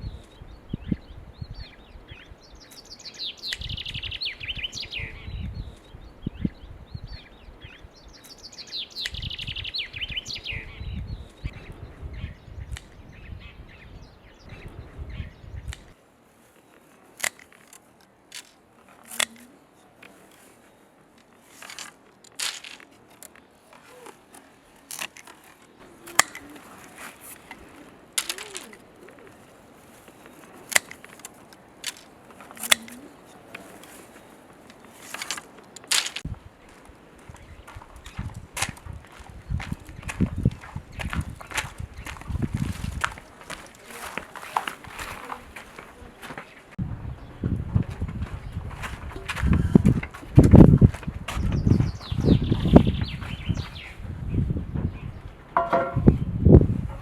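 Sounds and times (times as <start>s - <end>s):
bird chirping: 0.0s - 47.6s, 51.4s - 56.4s
pruning shears snipping: 2.7s - 4.1s, 15.7s - 46.5s.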